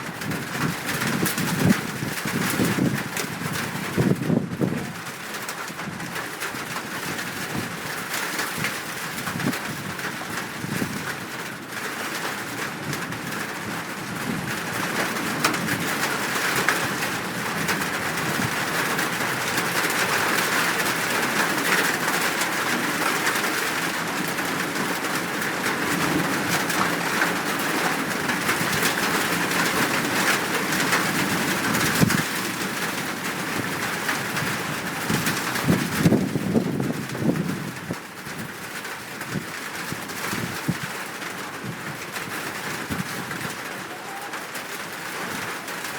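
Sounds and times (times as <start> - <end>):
rain hissing: 40.2 - 45.9.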